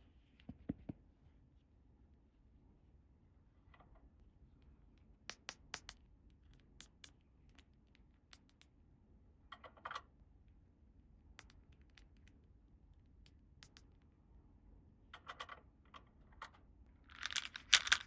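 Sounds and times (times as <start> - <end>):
plastic toy pieces clicking: 16.4 - 18.0.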